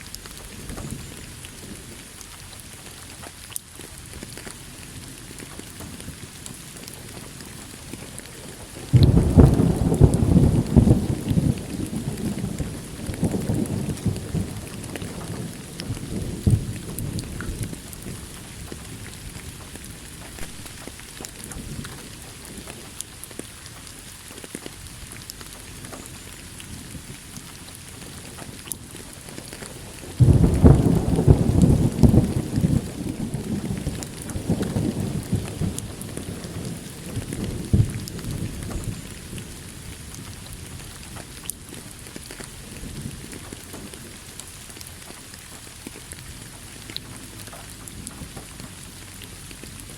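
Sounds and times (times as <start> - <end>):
steady rain: 0.0 - 49.9
thunder rumbling: 5.5 - 23.4, 24.9 - 44.8.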